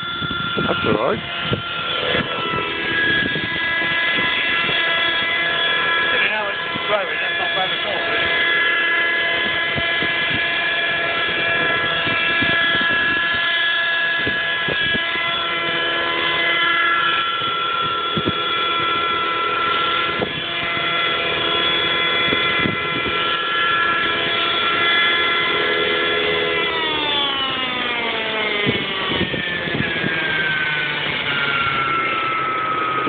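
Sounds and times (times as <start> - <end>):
wind gusts thumping microphone: 0.0 - 5.8, 8.2 - 18.9, 19.8 - 25.2, 28.5 - 33.0
model helicopter engine whine: 0.0 - 33.0.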